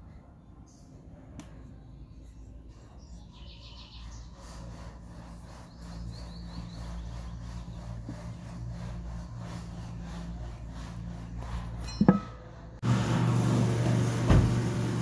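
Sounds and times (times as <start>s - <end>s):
birds chirping in trills: 2.0s - 8.6s.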